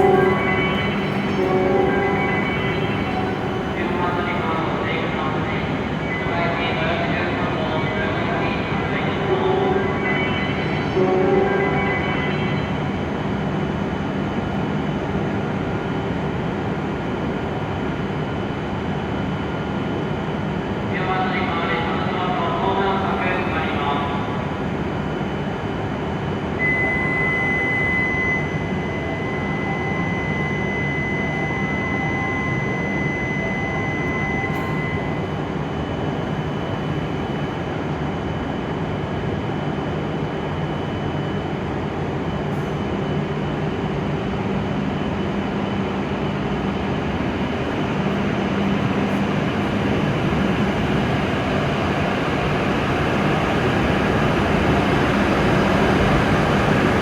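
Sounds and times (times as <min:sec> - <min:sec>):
steady high tone: 0:00.0 - 0:05.6, 0:26.6 - 0:36.4
train motors and wheels rumbling: 0:00.0 - 0:20.9, 0:23.3 - 0:57.0.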